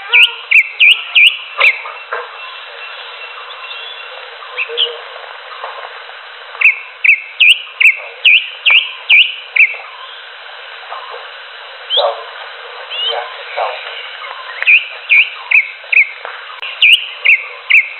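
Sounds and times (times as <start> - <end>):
steady hiss: 0.0 - 17.9
bird whistling calls: 0.1 - 5.0, 6.6 - 10.2, 12.9 - 13.2, 14.3 - 17.9.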